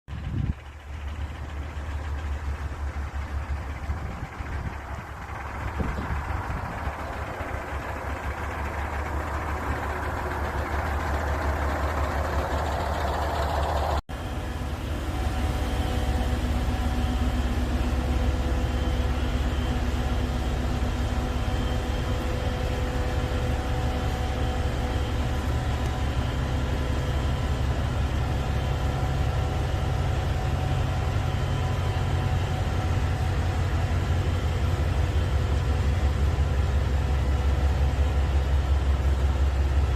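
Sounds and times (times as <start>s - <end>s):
train humming: 0.1s - 39.9s.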